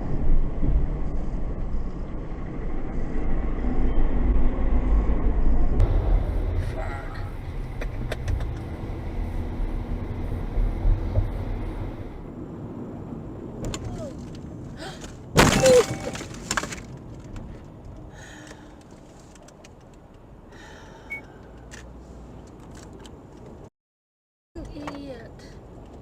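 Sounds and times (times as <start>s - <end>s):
low road noise: 0.0s - 23.7s, 24.6s - 26.0s
loud crash: 15.4s - 16.8s.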